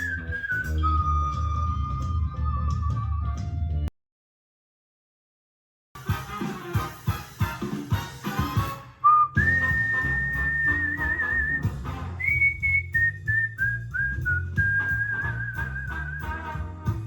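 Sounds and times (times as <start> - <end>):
whistled melody: 0.0 - 3.8, 9.0 - 17.0
backing music with bass line: 0.0 - 3.9, 6.0 - 17.0.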